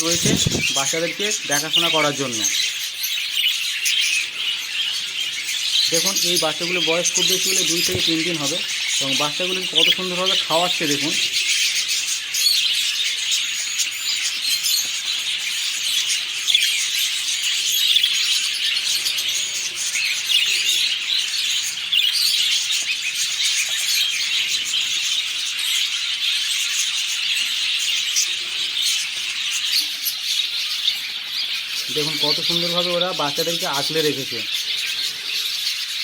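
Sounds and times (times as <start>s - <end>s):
budgerigars chattering and chirping: 0.0s - 36.0s.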